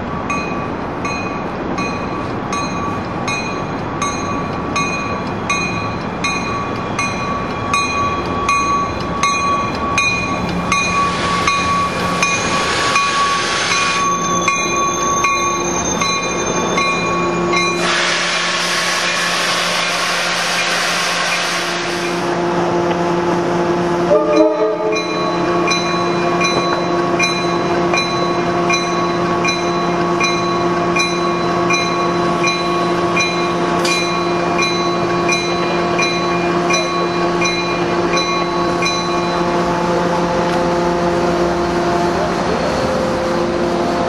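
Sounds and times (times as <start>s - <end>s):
crossing bell ringing: 0.0s - 18.0s, 24.0s - 41.8s
diesel locomotive engine hum: 0.0s - 44.0s
train rolling past: 0.0s - 44.0s
air hissing: 17.6s - 22.3s.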